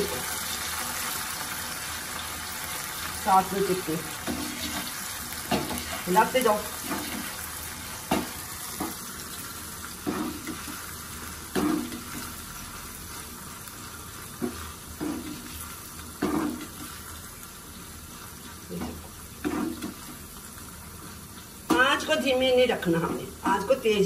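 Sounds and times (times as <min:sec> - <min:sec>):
corn frying in hot oil: 0:00.0 - 0:24.0
metal spoon scraping a pan: 0:04.2 - 0:06.1, 0:11.5 - 0:12.3, 0:14.3 - 0:17.2, 0:18.3 - 0:20.2.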